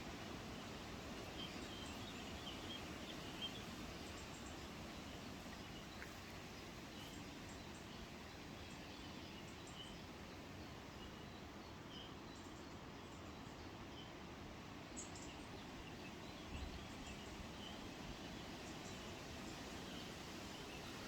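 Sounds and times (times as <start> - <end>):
faint steady hiss: 0.0 - 21.0.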